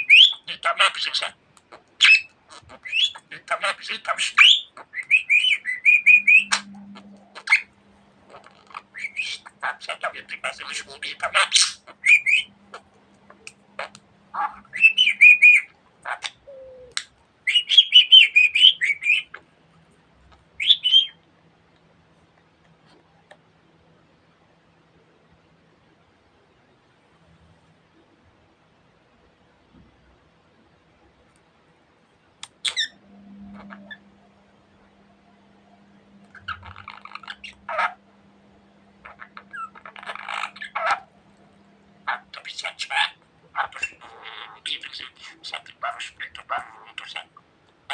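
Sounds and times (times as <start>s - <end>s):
budgerigar chirping: 0.0s - 1.4s, 2.0s - 7.7s, 8.3s - 12.8s, 13.8s - 16.8s, 17.5s - 19.4s, 20.6s - 21.2s, 32.6s - 34.0s, 36.3s - 38.0s, 39.0s - 41.1s, 42.0s - 47.3s
faint low hum: 0.0s - 47.9s.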